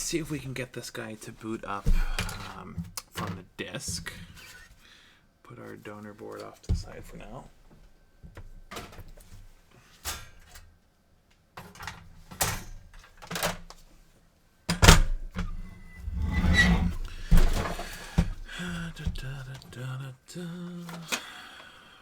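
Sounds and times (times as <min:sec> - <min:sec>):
objects knocking and thunking: 0:01.8 - 0:04.5, 0:14.7 - 0:19.6
scraping and rustling: 0:15.4 - 0:19.6.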